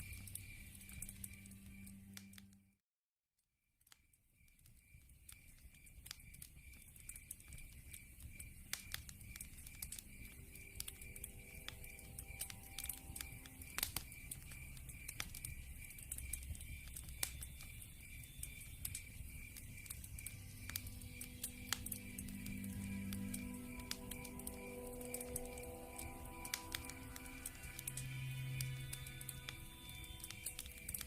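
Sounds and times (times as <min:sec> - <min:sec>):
wood fire crackling and popping: 0:00.0 - 0:02.4, 0:04.4 - 0:31.0
high pulsing chirp: 0:09.2 - 0:31.0.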